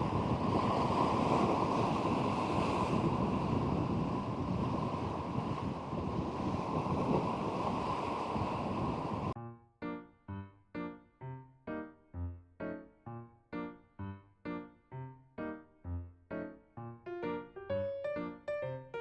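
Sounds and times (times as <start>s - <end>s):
surf on the shore: 0.0s - 9.4s
wind buffeting microphone: 0.0s - 9.4s.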